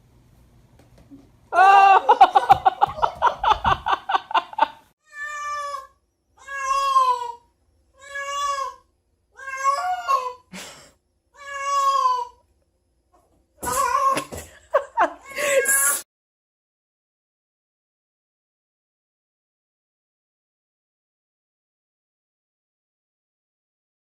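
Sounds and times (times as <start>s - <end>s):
cat meowing: 5.0s - 7.4s, 8.0s - 8.8s, 9.4s - 10.4s, 11.4s - 12.4s.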